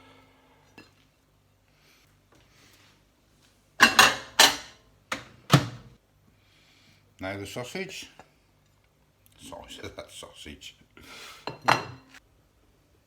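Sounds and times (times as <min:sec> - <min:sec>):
crockery clattering: 0:03.8 - 0:04.8, 0:11.5 - 0:12.1.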